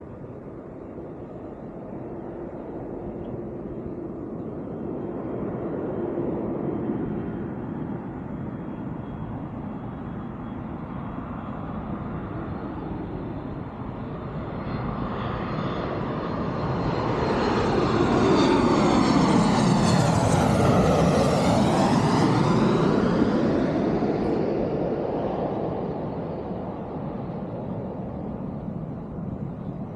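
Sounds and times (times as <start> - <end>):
airplane passing low overhead: 0.0 - 29.9.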